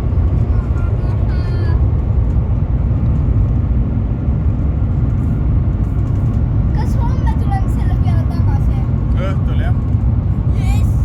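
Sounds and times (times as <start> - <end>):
train cabin low rumble: 0.0 - 11.0.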